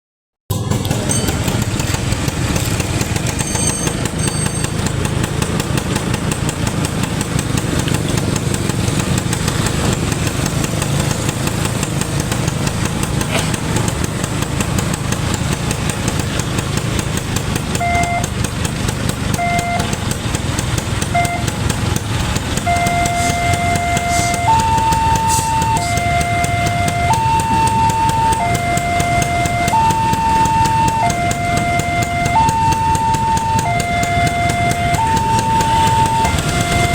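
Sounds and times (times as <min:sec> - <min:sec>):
engines idling in traffic: 0:00.5 - 0:36.9
vehicle horn tooting: 0:17.7 - 0:18.4, 0:19.3 - 0:20.1, 0:21.1 - 0:36.9.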